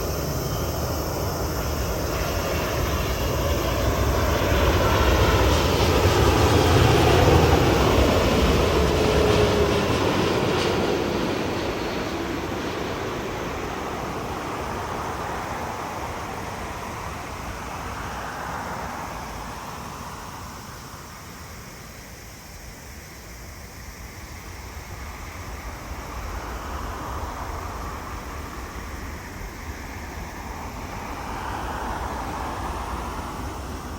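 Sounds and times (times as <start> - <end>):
distant jet engines: 0.0 - 33.9.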